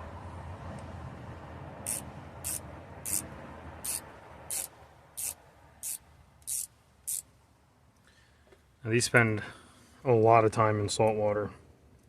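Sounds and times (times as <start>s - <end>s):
shears blades sliding: 1.9s - 3.2s, 3.8s - 7.2s.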